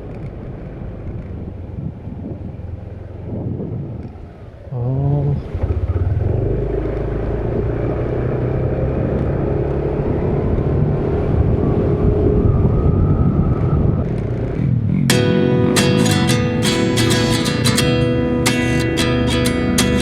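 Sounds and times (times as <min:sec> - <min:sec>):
motorcycle engine running: 0:14.0 - 0:20.0.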